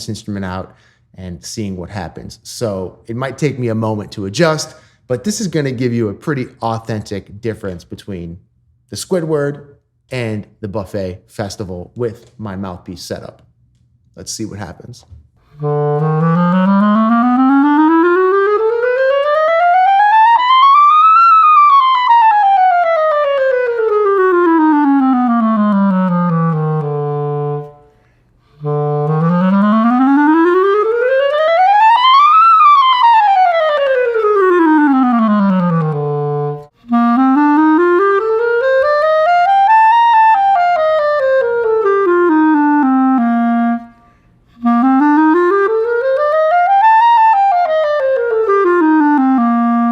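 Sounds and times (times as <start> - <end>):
breath: 0.7 - 1.1, 4.7 - 5.1, 27.8 - 28.6, 43.9 - 44.6
clarinet playing scales: 15.4 - 49.9.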